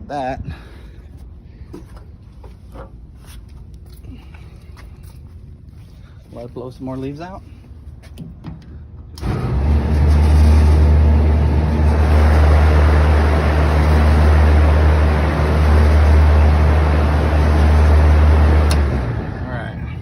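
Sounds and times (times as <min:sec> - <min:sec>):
fan blowing air: 0:00.0 - 0:20.0
deep motor hum: 0:08.7 - 0:20.0.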